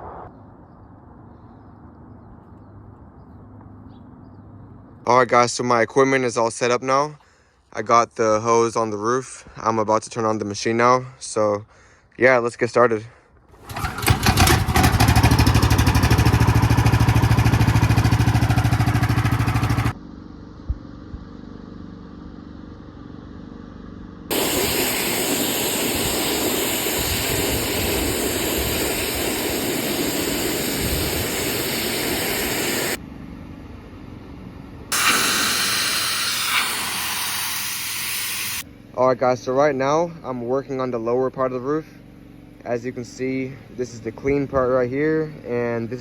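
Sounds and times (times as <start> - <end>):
pressure washer engine running: 13.6 - 20.0, 24.3 - 33.0, 34.9 - 38.6
water spraying hiss: 24.3 - 33.0, 34.9 - 38.6.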